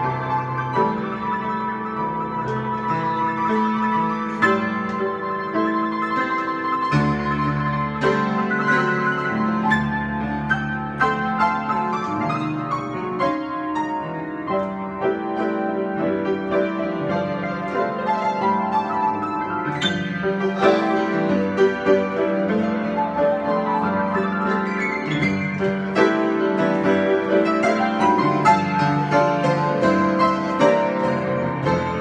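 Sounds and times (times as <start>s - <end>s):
piano improvisation: 0.0s - 32.0s.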